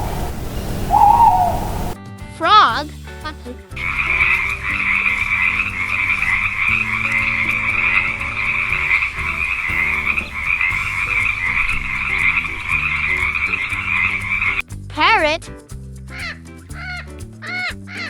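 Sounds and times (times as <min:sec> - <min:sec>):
frogs croaking in chorus: 0:00.0 - 0:02.0
music with stepped low notes: 0:00.0 - 0:18.0.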